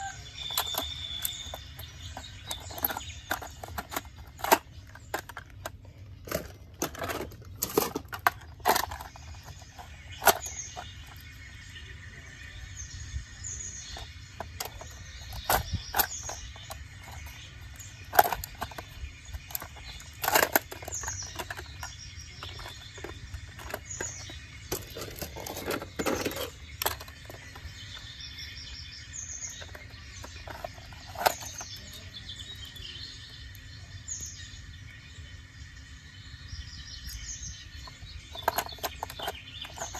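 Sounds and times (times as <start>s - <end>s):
small birds chirping: 0.0s - 39.9s
sharp clicks and knocks: 0.4s - 11.3s, 13.9s - 28.1s, 29.5s - 32.0s, 37.8s - 39.9s.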